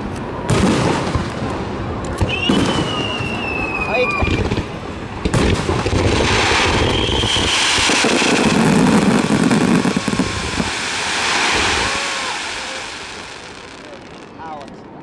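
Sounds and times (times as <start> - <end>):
fireworks bursting and crackling: 0.0 - 15.0.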